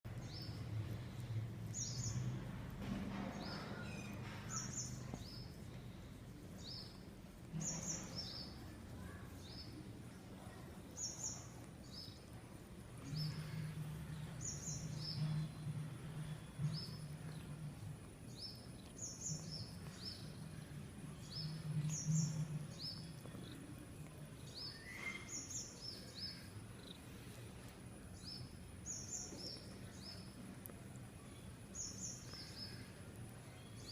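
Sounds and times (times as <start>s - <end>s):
steady low hum: 0.1s - 33.9s
bird chirping: 3.1s - 5.9s, 13.0s - 33.9s.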